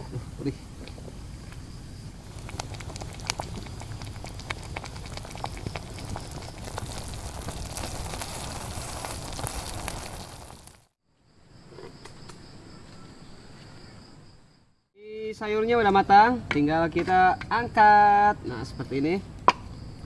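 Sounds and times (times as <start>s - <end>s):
fire crackling and popping: 0.7s - 11.0s
vegetables hissing in a pan: 2.2s - 10.9s.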